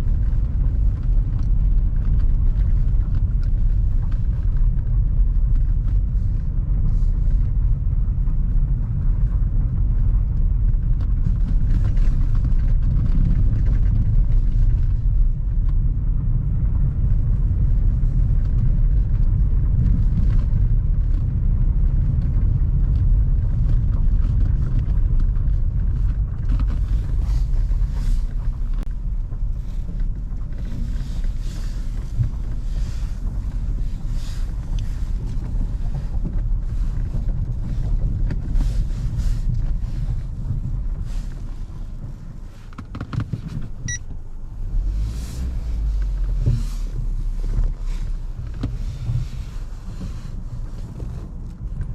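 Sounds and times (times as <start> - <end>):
car engine and road rumble: 0.0 - 51.9
crackles: 0.0 - 51.9.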